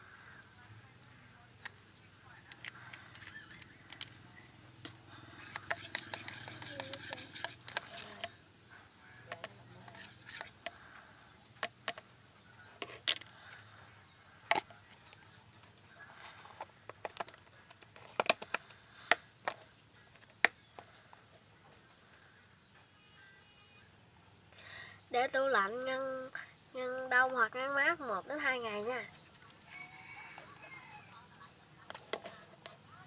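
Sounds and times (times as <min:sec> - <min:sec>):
faint steady hiss: 0:00.0 - 0:33.0
small objects clicking and tapping: 0:02.5 - 0:04.2, 0:04.8 - 0:08.4, 0:09.3 - 0:12.2, 0:14.5 - 0:21.2, 0:31.6 - 0:32.9.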